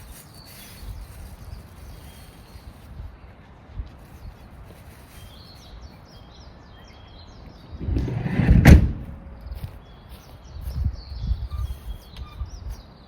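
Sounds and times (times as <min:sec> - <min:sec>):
small birds chirping: 0:00.0 - 0:07.8, 0:09.4 - 0:13.0
loud low rumble: 0:07.6 - 0:09.8
sharp thump: 0:07.7 - 0:09.7.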